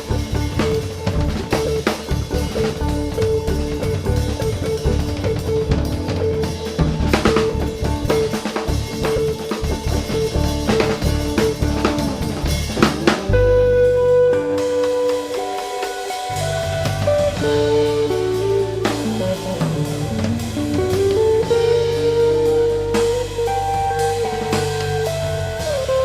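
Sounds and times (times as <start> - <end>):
band playing held chord: 0.0 - 26.0
drum kit playing: 0.0 - 26.0
repeated pitched note: 9.7 - 26.0.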